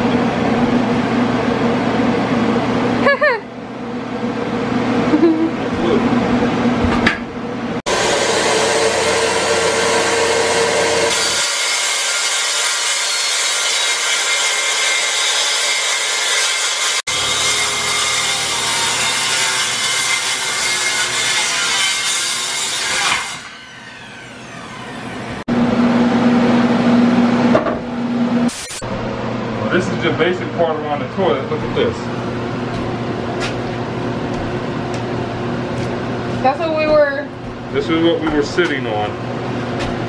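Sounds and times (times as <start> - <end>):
power saw cutting wood: 7.9 - 25.5.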